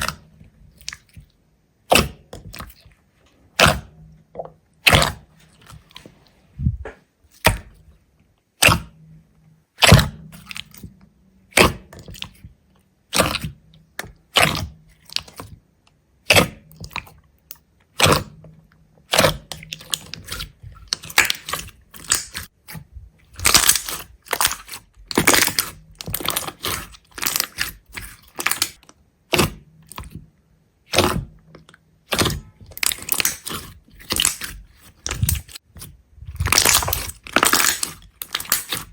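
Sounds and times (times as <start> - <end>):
brittle object cracking: 36.3 - 38.9.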